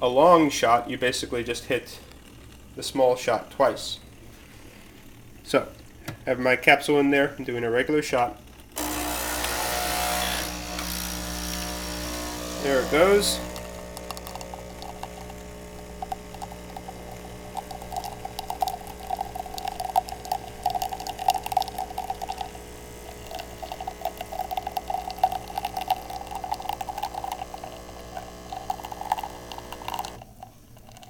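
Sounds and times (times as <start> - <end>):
coffee machine pump humming: 8.2 - 31.0
coffee sputtering into cup: 8.3 - 31.0.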